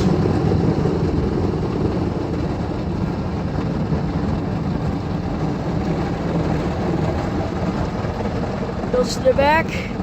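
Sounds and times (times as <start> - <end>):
car wash machine rumbling: 0.0 - 10.0.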